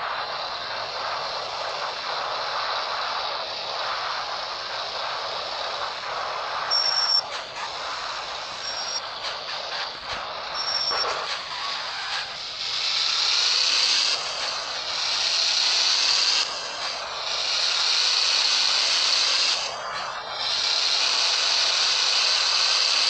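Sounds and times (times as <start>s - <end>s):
short high electronic beeps: 6.7s - 7.2s, 10.6s - 11.1s.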